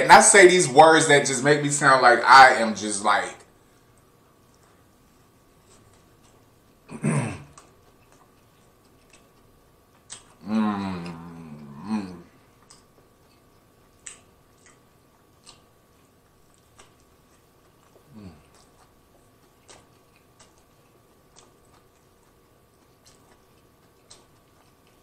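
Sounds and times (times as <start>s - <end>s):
close-mouthed chewing: 3.9s - 25.0s
wet mouth clicks: 7.4s - 12.0s, 12.6s - 15.8s, 16.4s - 25.0s
person humming mm: 10.4s - 12.3s, 18.1s - 18.5s.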